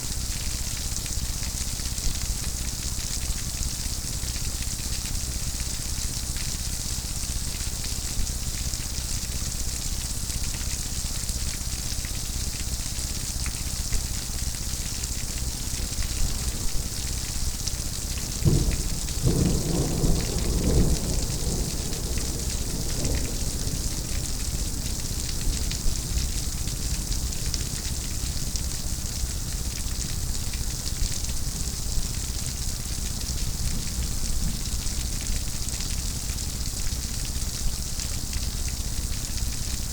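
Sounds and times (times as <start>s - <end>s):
heavy rain hissing: 14.3s - 30.3s
thunder rumbling: 15.5s - 26.6s.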